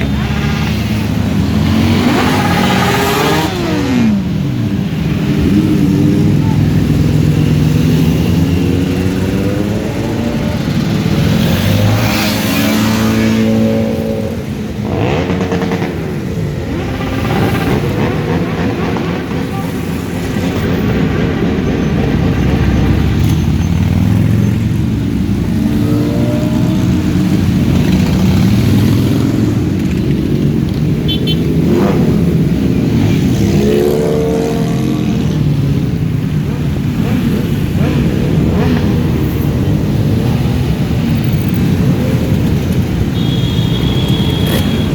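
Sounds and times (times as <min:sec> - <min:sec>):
motorcycle engines revving: 0:00.0 - 0:44.9.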